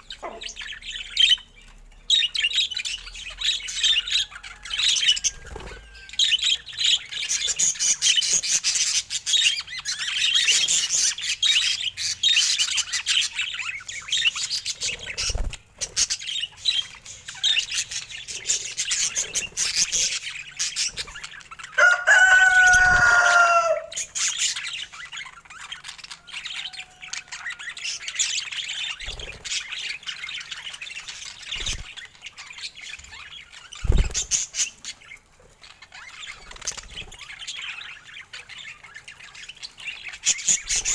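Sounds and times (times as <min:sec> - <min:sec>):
budgerigars chirping and chattering: 0:00.0 - 0:40.9
downward-sliding bird call: 0:21.8 - 0:23.9.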